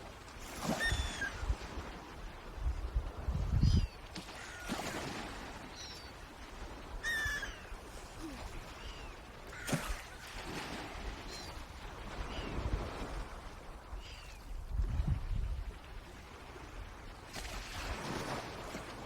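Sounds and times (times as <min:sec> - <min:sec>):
lower bird call: 0:07.0 - 0:09.8.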